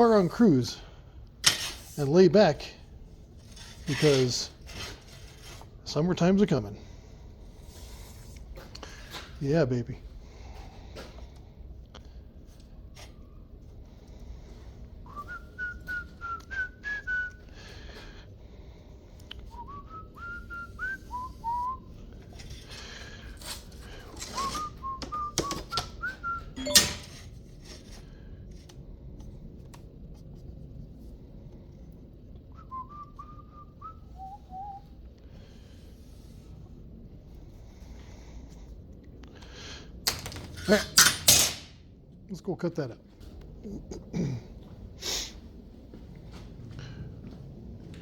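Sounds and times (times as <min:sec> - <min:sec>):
person whistling a tune: 0:15.0 - 0:17.5, 0:19.5 - 0:21.8, 0:24.4 - 0:27.0, 0:32.6 - 0:34.8.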